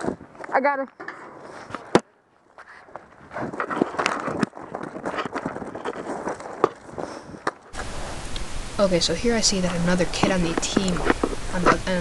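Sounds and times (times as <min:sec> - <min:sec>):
hurried footsteps: 0:00.0 - 0:08.0.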